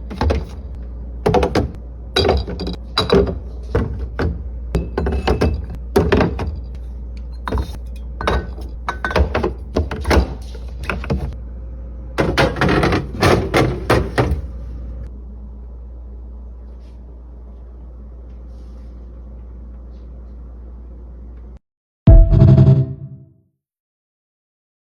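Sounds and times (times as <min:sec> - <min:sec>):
containers clunking on fridge shelves: 0:00.0 - 0:06.8, 0:07.4 - 0:11.4, 0:12.2 - 0:14.6
steady low hum: 0:00.0 - 0:21.6.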